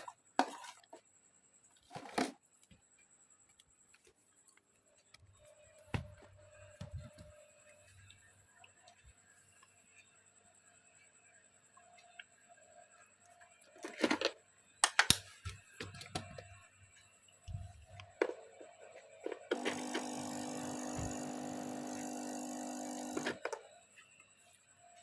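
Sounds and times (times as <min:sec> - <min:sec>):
small electric device buzzing: 0:19.5 - 0:23.6.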